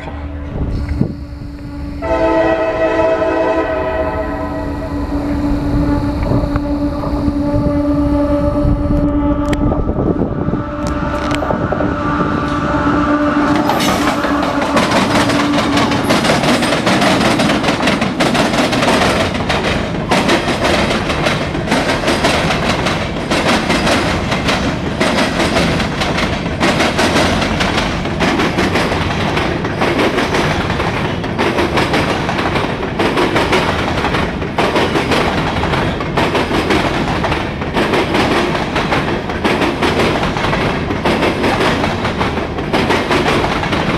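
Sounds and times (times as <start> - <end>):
steady horn-like tones: 0.0 - 17.0
freight train rumbling past: 0.0 - 43.9
wheels clickety-clack over rail joints: 13.5 - 43.9.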